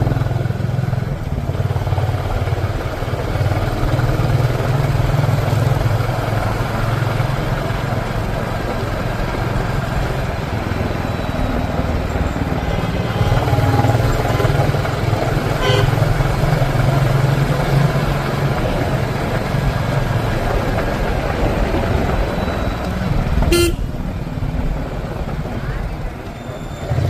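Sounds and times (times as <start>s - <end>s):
motorcycle engine running: 0.0s - 27.0s
road and wind noise: 0.0s - 27.0s
horn toot: 15.6s - 16.0s, 23.5s - 24.0s.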